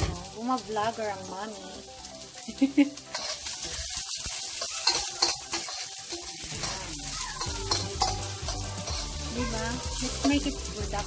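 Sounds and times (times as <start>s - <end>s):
onion and garlic sizzling in oil: 0.0s - 11.0s
spatula scraping and knocking pan: 4.2s - 10.6s.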